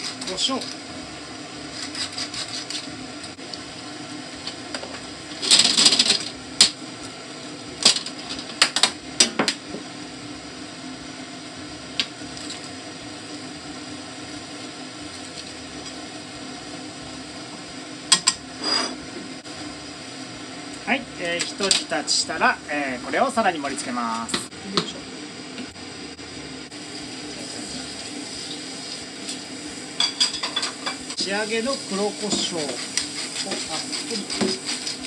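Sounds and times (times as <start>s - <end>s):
steady hum: 0.0s - 35.0s
spatula scraping a pan: 1.7s - 3.0s, 30.4s - 35.0s.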